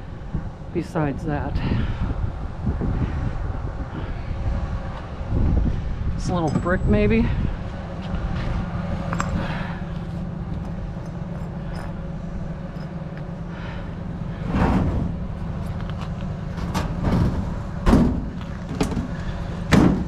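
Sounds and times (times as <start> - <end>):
steady low rumble: 0.0 - 20.0
heavy scrap knocks and thuds: 14.4 - 15.4, 16.5 - 20.0.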